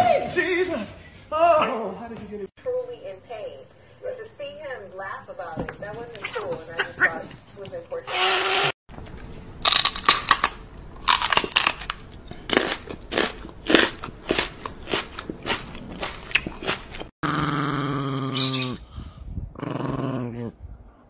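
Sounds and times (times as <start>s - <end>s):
person crunching and munching: 9.6s - 17.1s
small dog growling: 17.2s - 18.8s, 19.5s - 20.6s.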